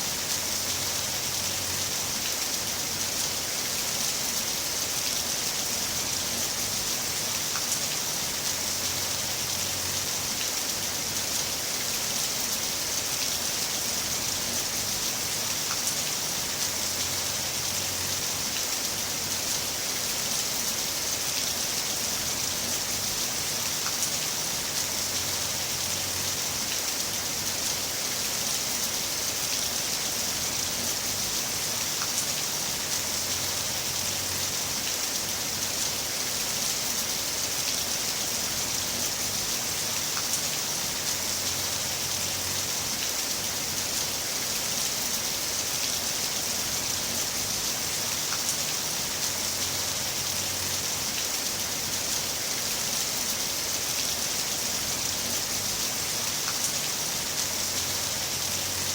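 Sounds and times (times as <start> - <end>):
heavy rain falling: 0.0 - 58.9.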